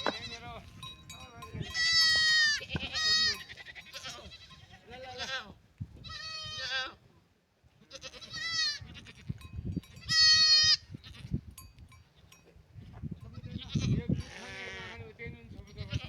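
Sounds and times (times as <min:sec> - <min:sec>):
sheep bleating: 0:00.0 - 0:00.8, 0:01.5 - 0:07.0, 0:07.8 - 0:09.4, 0:10.0 - 0:11.3, 0:13.4 - 0:15.0, 0:15.7 - 0:16.0.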